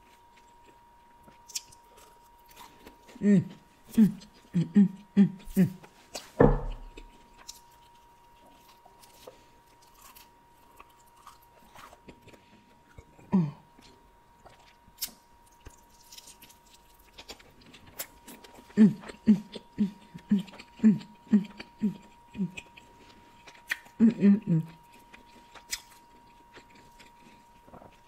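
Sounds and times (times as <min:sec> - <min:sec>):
chewing and biting chicken wings: 0:00.0 - 0:04.5, 0:05.4 - 0:28.0
short hummed voice sounds: 0:03.1 - 0:05.9, 0:13.1 - 0:13.8, 0:18.6 - 0:22.8, 0:23.9 - 0:24.9.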